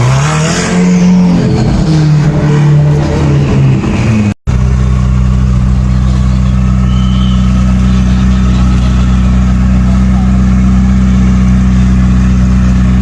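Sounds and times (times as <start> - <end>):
engine revving: 0.0 - 13.0
engine idling: 4.5 - 13.0.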